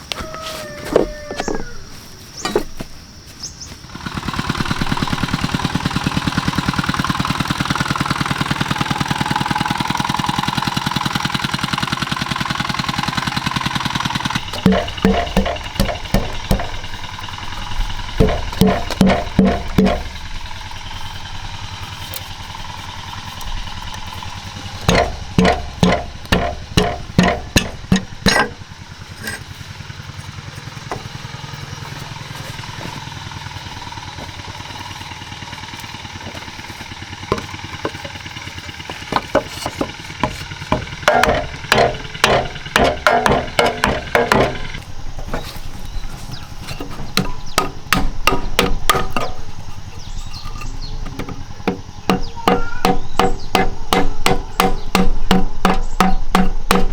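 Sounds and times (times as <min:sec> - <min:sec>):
steady mechanical hum: 0:00.0 - 0:56.9
ringing strikes on metal: 0:14.3 - 0:20.7, 0:24.7 - 0:28.6, 0:40.8 - 0:44.8, 0:47.2 - 0:56.9.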